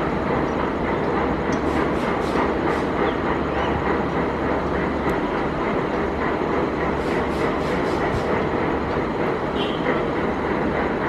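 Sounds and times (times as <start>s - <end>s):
freight train rumbling: 0.0s - 11.0s.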